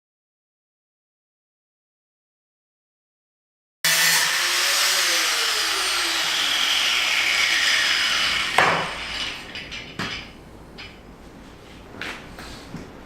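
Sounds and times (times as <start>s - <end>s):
power tool cutting: 3.8s - 9.6s.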